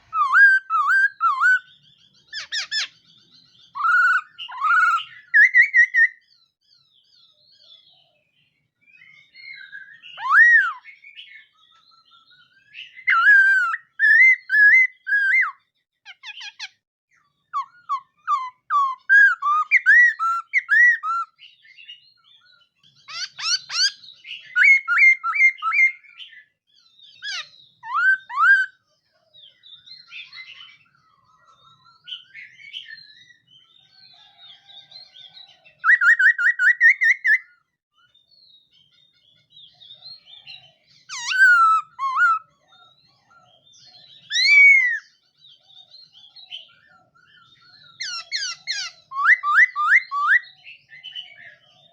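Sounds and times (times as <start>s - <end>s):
bird singing whistled phrases: 0.0s - 6.3s, 8.9s - 16.7s, 17.5s - 22.4s, 23.0s - 28.8s, 35.8s - 38.7s, 39.6s - 42.6s, 43.6s - 45.2s, 46.0s - 51.7s.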